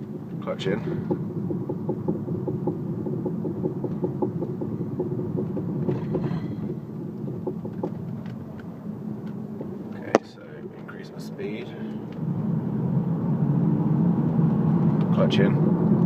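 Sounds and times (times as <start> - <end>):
road rumble: 0.0 - 16.0
repetitive engine knock: 0.8 - 8.6.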